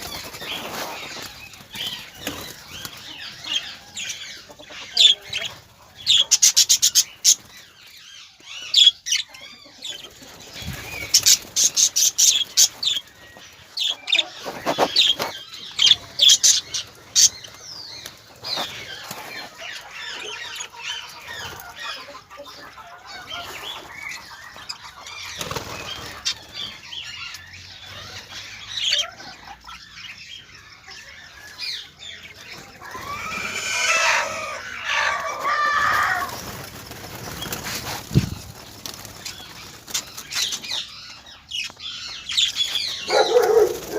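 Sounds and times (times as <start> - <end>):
bird calls: 0.0 - 43.9
birds flapping wings: 25.4 - 26.3, 35.8 - 40.4.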